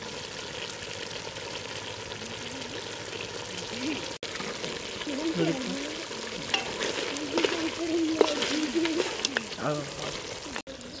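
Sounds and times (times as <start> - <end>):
chicken frying sizzle: 0.0 - 11.0.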